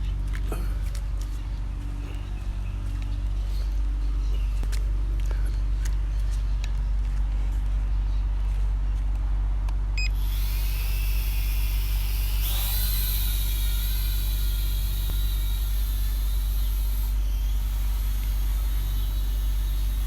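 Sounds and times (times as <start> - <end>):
vehicle engine humming: 0.0 - 20.0
hiss with high whine: 10.1 - 20.0.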